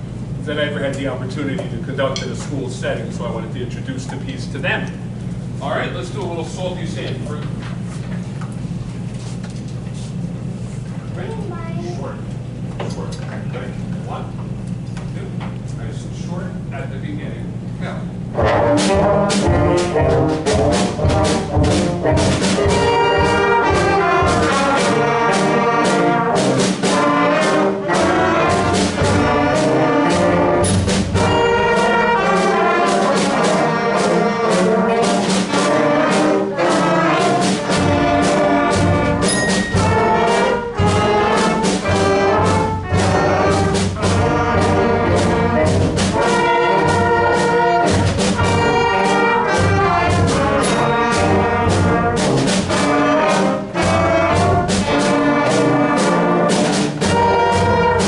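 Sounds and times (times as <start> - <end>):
concert band playing jazz: 18.0 - 58.0
trumpets and trombones: 18.3 - 58.0.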